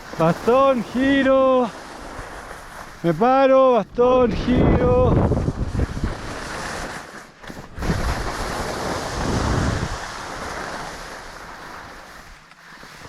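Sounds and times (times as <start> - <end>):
skis scraping over snow: 0.0 - 13.0
wind on microphone: 3.9 - 6.9, 7.5 - 11.3.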